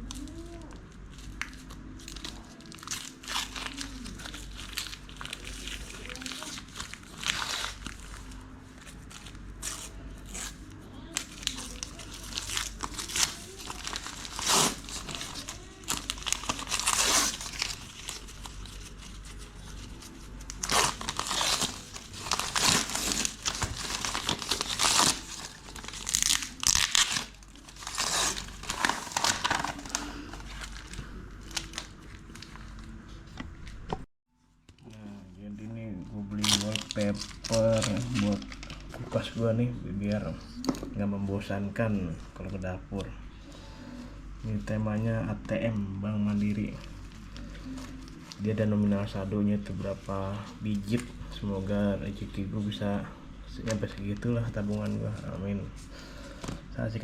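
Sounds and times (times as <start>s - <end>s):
packaging crinkling and tearing: 0.0s - 33.8s, 36.3s - 39.4s.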